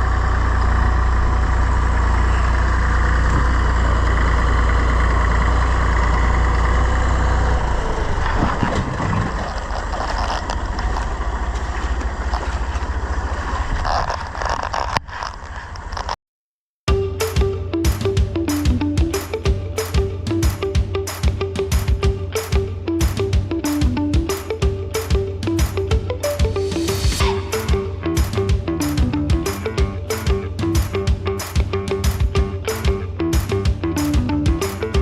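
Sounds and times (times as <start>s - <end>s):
engine knocks: 0.0s - 13.8s, 27.5s - 35.0s
tractor engine under load: 0.0s - 16.2s.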